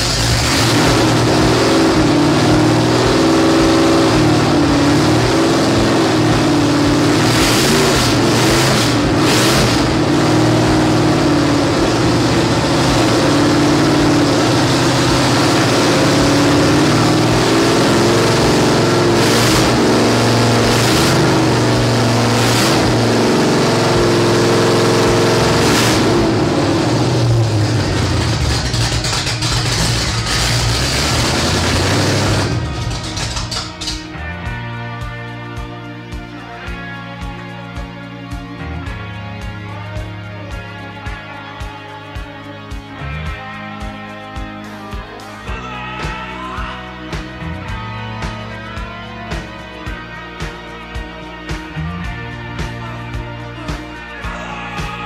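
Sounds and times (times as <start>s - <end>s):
car engine revving: 0.0s - 34.8s.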